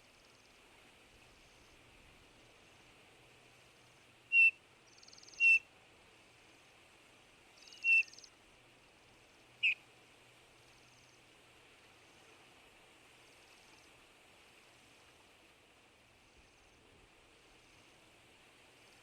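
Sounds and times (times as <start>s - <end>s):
bird piping whistles: 4.3s - 5.6s, 7.6s - 8.3s.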